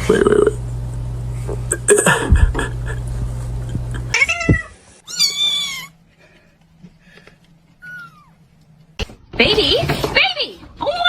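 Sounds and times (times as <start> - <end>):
steady low hum: 0.0 - 5.0
cat meowing: 4.2 - 6.0, 7.8 - 8.4.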